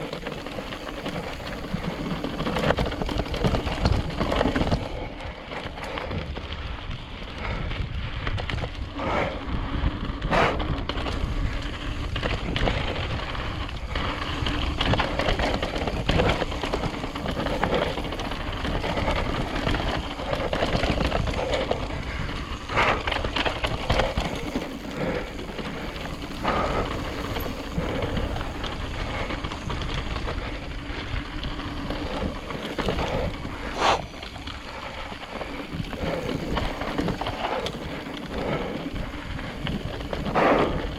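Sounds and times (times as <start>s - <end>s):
bike knocking over bumps: 0.0s - 5.1s
bike tyre and rattle noise: 0.0s - 40.9s
wind buffeting microphone: 0.0s - 40.9s.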